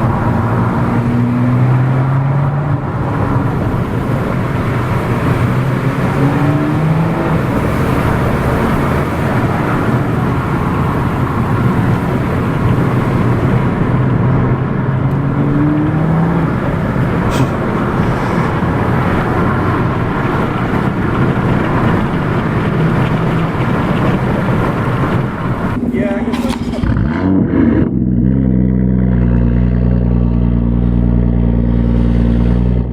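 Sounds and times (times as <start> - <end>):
car engine drone: 0.0 - 32.9
road and wind noise: 0.0 - 32.9.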